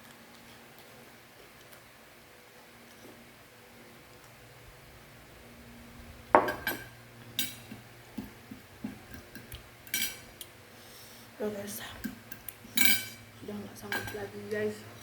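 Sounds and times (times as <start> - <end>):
spoon clinking against a dish: 9.1 - 10.3, 12.0 - 13.3.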